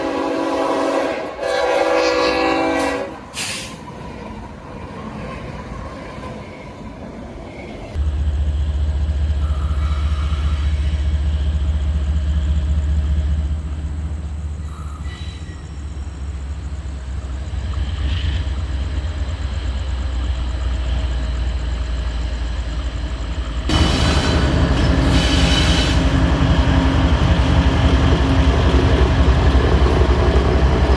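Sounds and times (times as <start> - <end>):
train horn blasts: 0.0 - 3.7, 9.3 - 11.1, 23.7 - 27.5
deep rumble of train running: 0.0 - 30.9.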